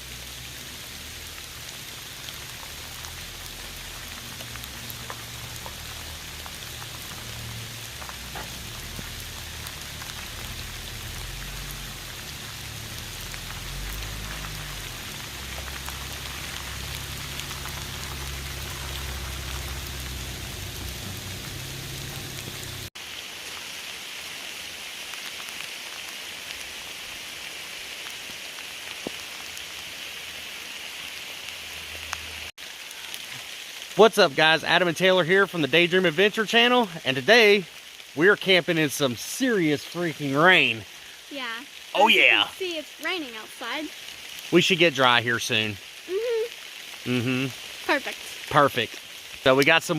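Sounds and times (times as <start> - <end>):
heavy rain hissing: 0.0 - 49.9
deep low rumble: 2.3 - 22.9.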